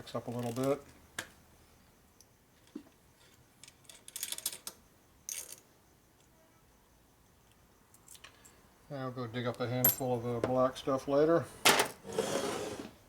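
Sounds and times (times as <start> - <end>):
metal bolts clinking: 9.8 - 10.2.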